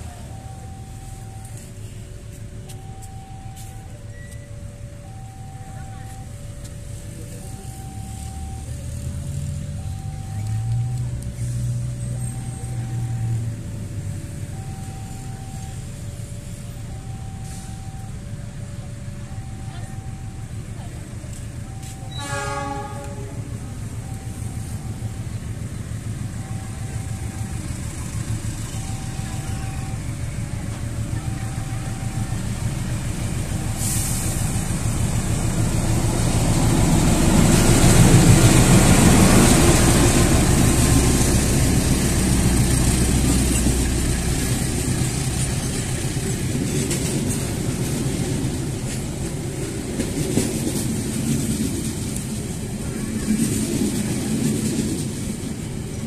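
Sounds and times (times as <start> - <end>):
locomotive rumbling past: 0.0 - 56.0
two-tone level-crossing warning tones: 0.0 - 56.0.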